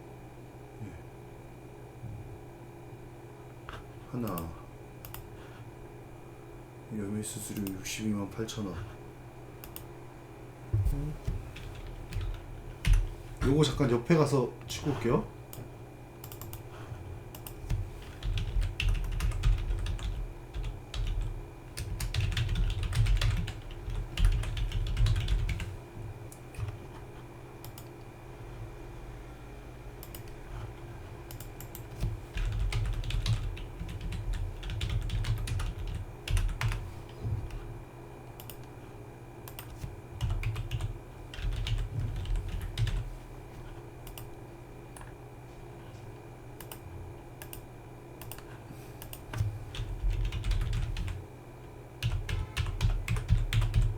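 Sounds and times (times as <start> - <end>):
faint steady hum: 0.0 - 53.9
typing on a computer keyboard: 4.2 - 5.3, 11.6 - 13.1, 16.2 - 16.6, 17.3 - 25.7, 27.6 - 27.9, 31.3 - 36.8, 39.4 - 43.1, 48.2 - 51.2, 52.0 - 53.9.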